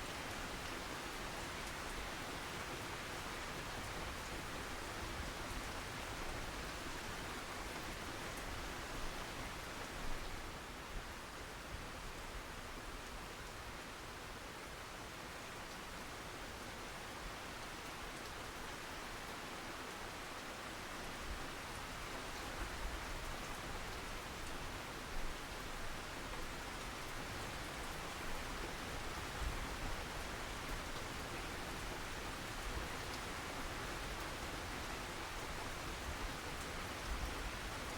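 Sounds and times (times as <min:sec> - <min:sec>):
steady rain hiss: 0:00.0 - 0:37.9.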